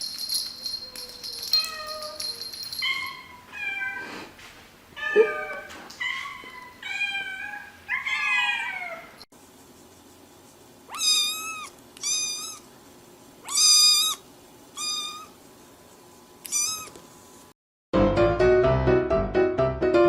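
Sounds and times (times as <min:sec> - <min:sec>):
kitten meowing: 0:10.9 - 0:12.6, 0:13.4 - 0:14.2, 0:14.8 - 0:15.3, 0:16.4 - 0:17.0.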